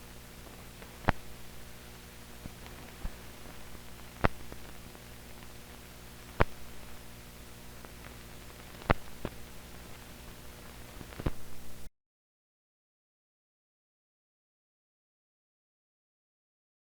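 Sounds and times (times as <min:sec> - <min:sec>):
crackle: 0:00.0 - 0:11.9
mains hum and hiss: 0:00.0 - 0:11.9.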